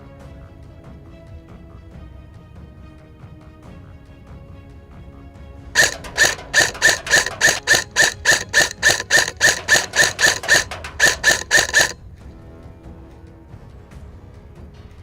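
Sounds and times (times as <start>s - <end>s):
rapid ringing clicking pulses: 5.8s - 12.0s.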